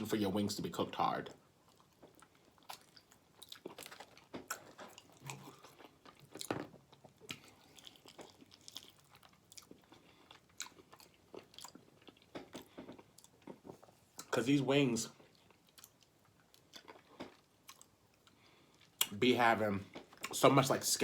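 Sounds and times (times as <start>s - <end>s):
person chewing food: 1.3s - 14.3s, 15.2s - 19.1s, 19.8s - 20.4s
food crunching: 1.5s - 14.3s, 15.2s - 19.2s.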